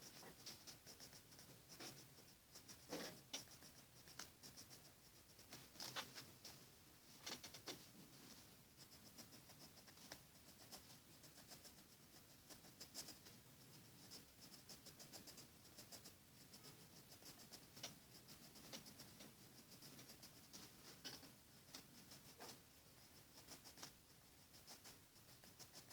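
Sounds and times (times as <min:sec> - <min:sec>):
pencil scratching on paper: 0:00.0 - 0:05.6, 0:08.8 - 0:25.9.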